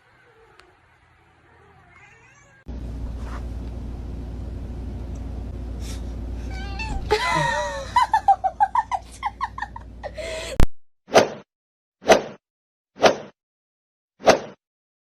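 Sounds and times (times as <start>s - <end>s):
cat meowing: 1.4s - 2.7s, 6.4s - 7.2s
steady low hum: 2.7s - 10.6s.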